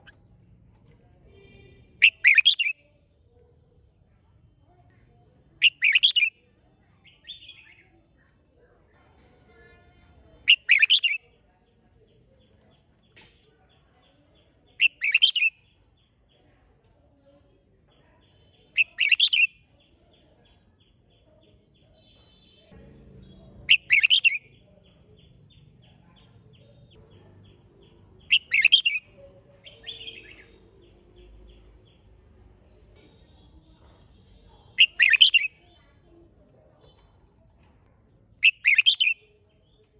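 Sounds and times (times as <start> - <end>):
bird whistled song phrases: 2.0 - 2.8, 5.6 - 6.4, 28.3 - 29.0, 34.8 - 35.6, 38.4 - 39.2.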